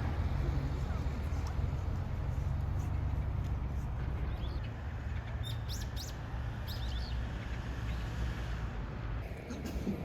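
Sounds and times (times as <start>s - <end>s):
small birds chirping: 4.3s - 8.1s.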